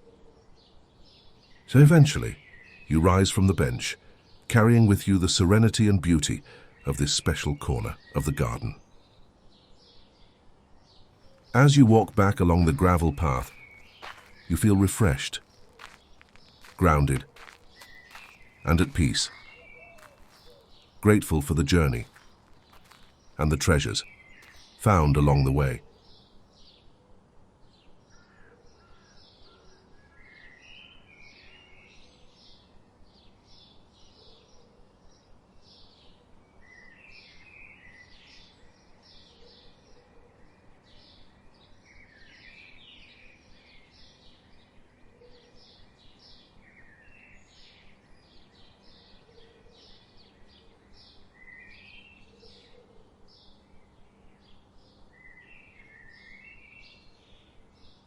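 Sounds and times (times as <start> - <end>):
birds chirping: 0.6 - 26.8.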